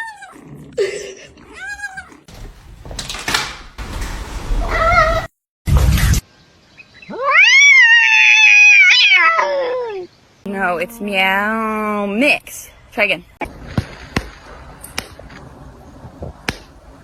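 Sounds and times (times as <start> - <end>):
cat meowing: 1.4 - 2.3.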